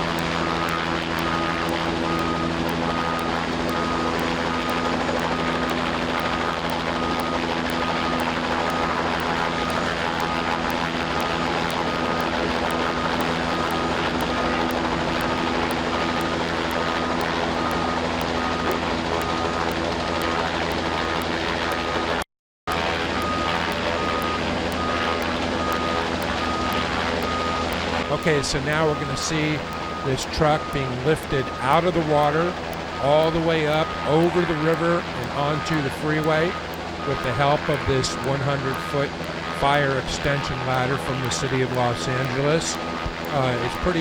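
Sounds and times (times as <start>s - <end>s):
fire truck engine running: 0.0s - 34.3s
constant rushing noise: 0.0s - 44.0s
rapid electronic warning beeps: 0.0s - 44.0s.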